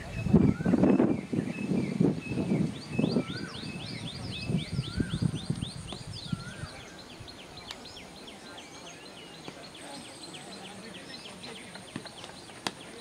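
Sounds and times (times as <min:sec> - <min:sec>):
high bird chirps: 0:00.2 - 0:13.0
bird whistle rising and falling: 0:00.4 - 0:07.0.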